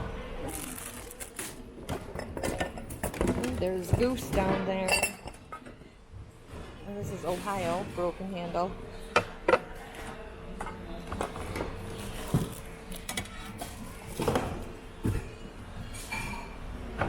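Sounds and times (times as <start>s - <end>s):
ceramic mugs clinking: 4.8s - 5.8s.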